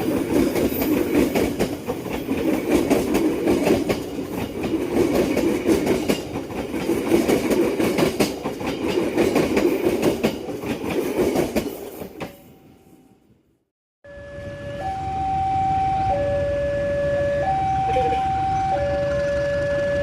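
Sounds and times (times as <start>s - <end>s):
train wheels clicking over rail joints: 0.0s - 12.5s.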